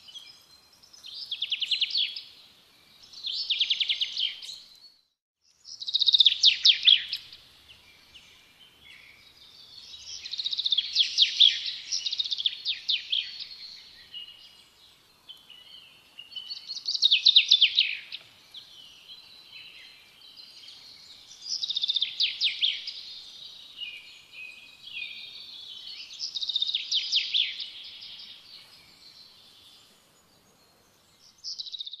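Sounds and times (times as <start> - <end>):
quiet bird chirps: 0.0 - 32.0
songbird singing rapid notes: 0.0 - 32.0.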